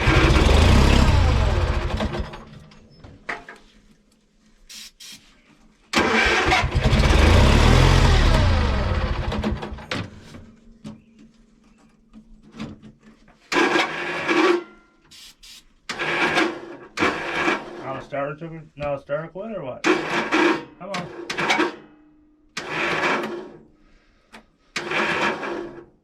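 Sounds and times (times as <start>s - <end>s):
lawn mower engine starting: 0.0s - 3.0s, 5.9s - 10.5s, 13.1s - 18.2s, 19.8s - 21.9s, 22.5s - 26.0s.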